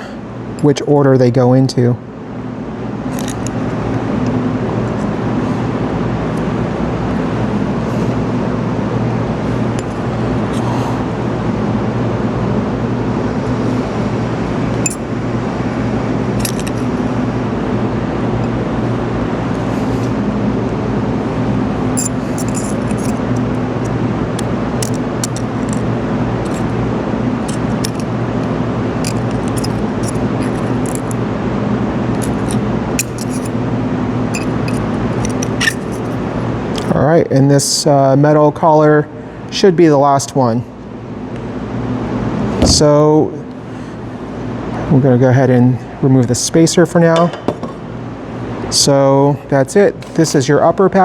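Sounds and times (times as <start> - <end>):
shop machinery drone: 0.0 - 51.0
light metallic clicks and clinks: 3.1 - 3.6, 14.8 - 15.1, 16.4 - 16.9, 22.0 - 26.8, 27.4 - 31.2, 32.1 - 33.6, 34.4 - 36.2, 50.0 - 50.4.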